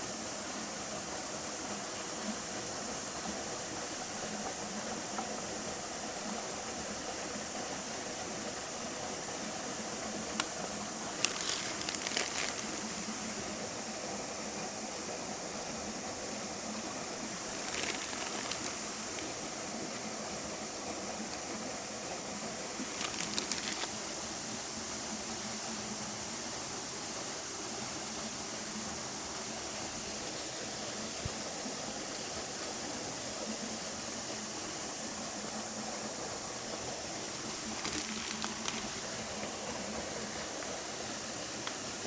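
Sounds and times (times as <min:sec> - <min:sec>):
steady outdoor hiss: 0:00.0 - 0:42.0
crackling clicks: 0:10.2 - 0:13.4, 0:17.4 - 0:19.4, 0:22.8 - 0:24.0, 0:37.4 - 0:39.1.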